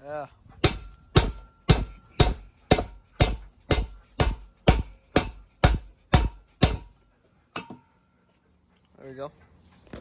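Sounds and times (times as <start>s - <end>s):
hammer blows ringing: 0.6s - 7.0s.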